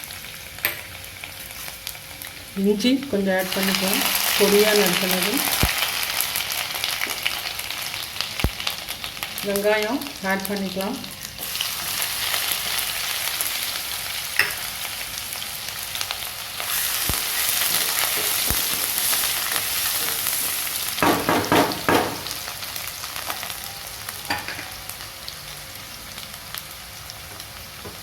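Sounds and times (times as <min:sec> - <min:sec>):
onion sizzling in hot oil: 0:00.0 - 0:28.0
spatula scraping a pan: 0:16.6 - 0:20.8.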